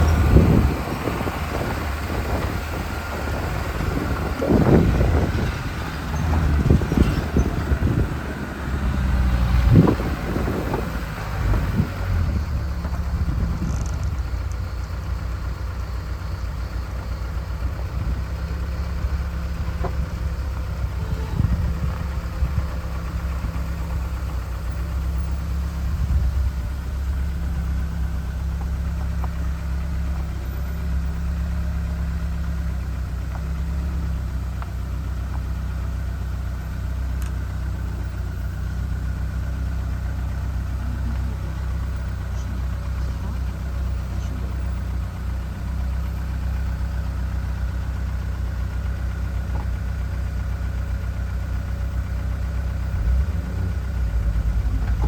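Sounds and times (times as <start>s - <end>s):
car engine running at low revs: 0.0s - 55.0s.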